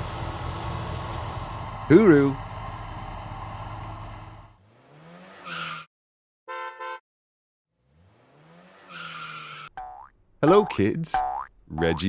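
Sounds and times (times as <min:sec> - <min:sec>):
engine revving: 0:00.0 - 0:05.8, 0:07.7 - 0:09.7.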